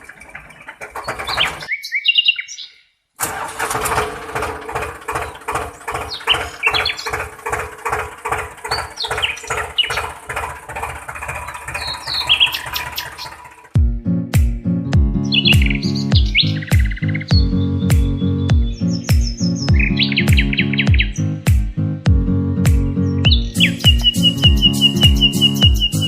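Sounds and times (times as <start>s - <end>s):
cultivator motor clattering: 0.0s - 1.7s, 3.2s - 13.8s, 23.3s - 26.0s
birds chirping: 0.0s - 3.1s, 5.0s - 13.8s, 15.0s - 26.0s.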